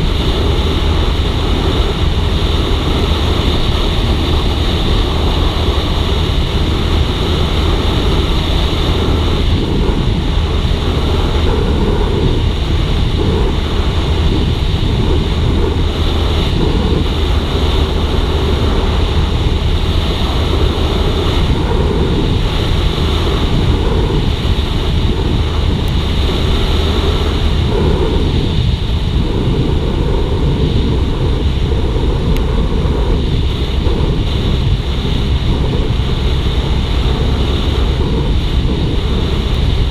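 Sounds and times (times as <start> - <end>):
motorcycle engine drone: 0.0 - 39.9
wind rushing over microphone: 0.0 - 39.9.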